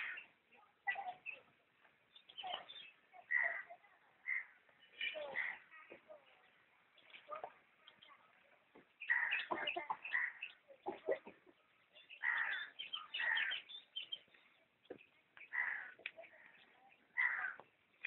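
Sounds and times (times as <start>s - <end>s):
harsh bird calls: 0.0s - 1.5s, 2.1s - 6.0s, 9.0s - 11.3s, 11.9s - 18.0s.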